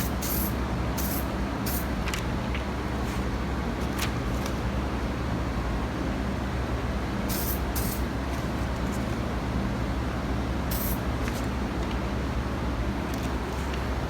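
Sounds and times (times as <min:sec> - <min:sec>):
spray can hissing: 0:00.0 - 0:01.9, 0:07.3 - 0:08.0, 0:10.7 - 0:11.0.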